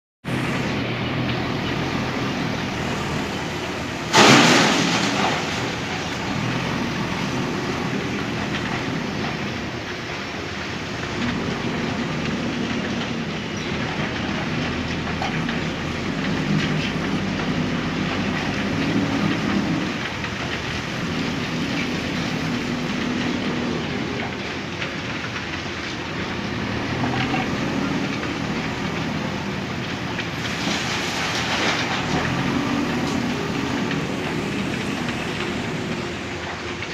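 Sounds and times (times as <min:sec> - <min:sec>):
diesel engine under load: 0:00.2 - 0:36.9
loud bang: 0:04.1 - 0:06.2.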